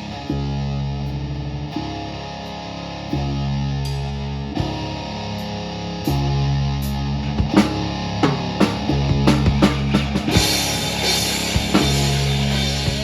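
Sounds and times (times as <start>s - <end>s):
distorted guitar and bass chords: 0.0s - 13.0s
drum kit hits: 7.4s - 13.0s.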